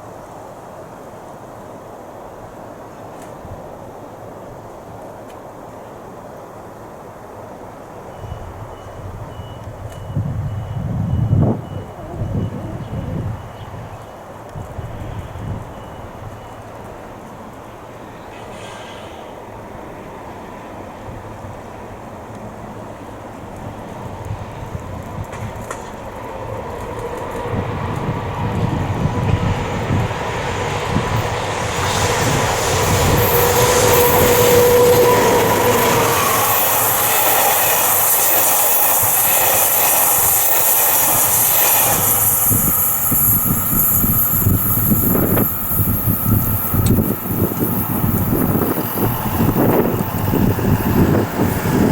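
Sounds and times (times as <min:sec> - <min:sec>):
train passing: 0:00.0 - 0:51.9
wheels clacking over rail joints: 0:21.9 - 0:51.9
steady whine: 0:26.5 - 0:51.9.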